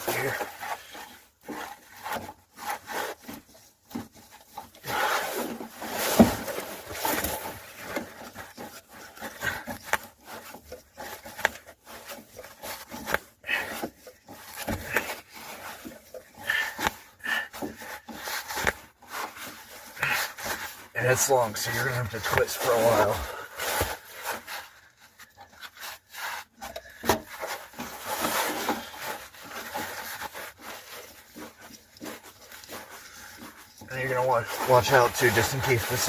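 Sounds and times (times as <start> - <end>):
hose rubbing and scraping on fitting: 0.0 - 36.0.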